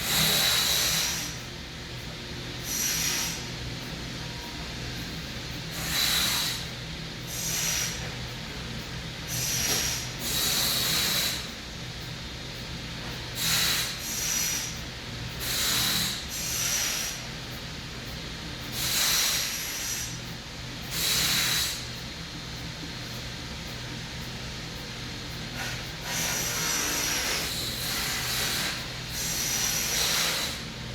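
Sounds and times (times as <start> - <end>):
person breathing hard through nose: 0.0 - 1.4, 9.3 - 11.6, 13.4 - 14.8, 18.7 - 20.1
steady low hum: 0.0 - 30.9.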